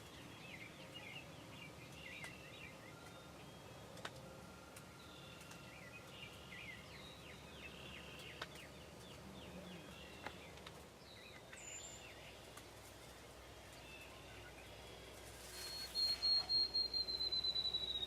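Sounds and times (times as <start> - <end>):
songbirds chirping: 0.0 - 18.0
steady background hiss: 0.0 - 18.0
short high whistle: 15.6 - 18.0.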